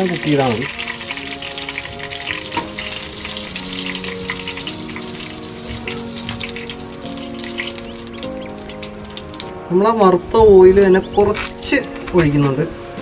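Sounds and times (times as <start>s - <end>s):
oil sizzling in frying pan: 0.0s - 9.6s, 12.3s - 13.0s.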